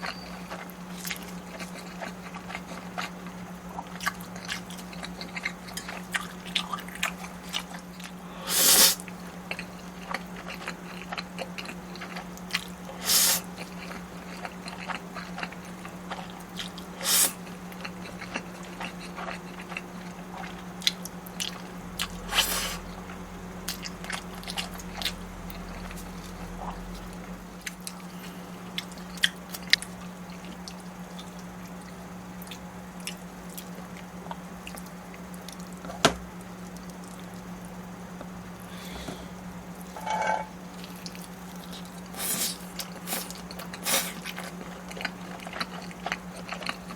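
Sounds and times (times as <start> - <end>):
chewing with mouth clicks: 0.0 - 8.2, 9.0 - 38.4, 40.7 - 46.9
low hum: 38.0 - 41.3
bites and slurps: 40.8 - 46.9.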